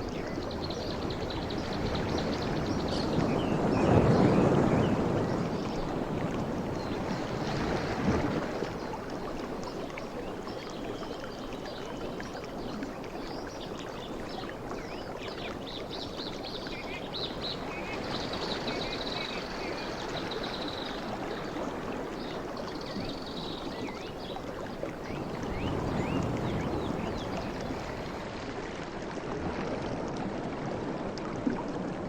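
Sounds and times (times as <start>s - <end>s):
sea waves washing in: 24.9s - 29.1s.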